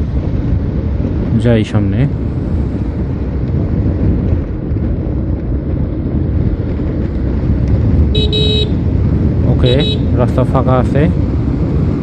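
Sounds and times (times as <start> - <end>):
road noise: 0.0 - 12.0
wind buffeting microphone: 0.0 - 12.0
motorcycle engine: 2.3 - 10.3.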